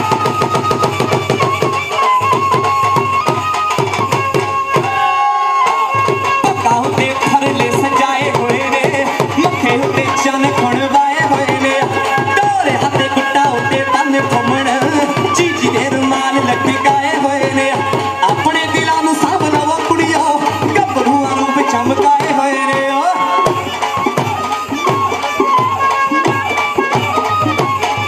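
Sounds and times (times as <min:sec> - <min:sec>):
fast driving drum beat: 0:06.0 - 0:28.0.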